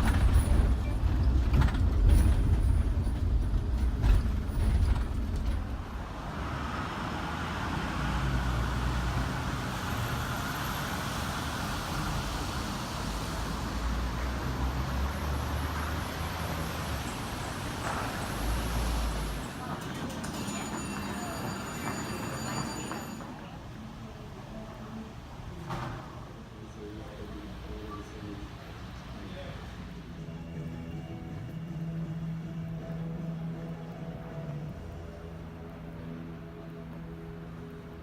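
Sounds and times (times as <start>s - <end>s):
vehicle low rumble: 0.0s - 19.7s.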